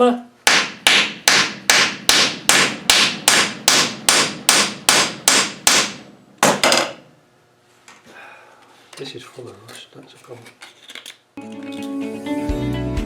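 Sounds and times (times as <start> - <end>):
hammer tapping on metal: 0.5 - 6.9.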